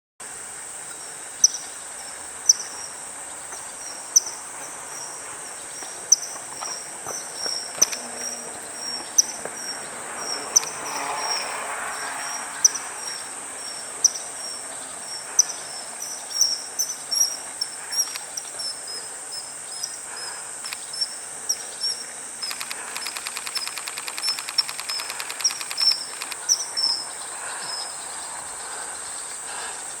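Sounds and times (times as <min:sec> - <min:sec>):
high insect drone: 0:00.2 - 0:30.0
kingfisher high-pitched calls: 0:10.2 - 0:11.6, 0:20.7 - 0:27.2.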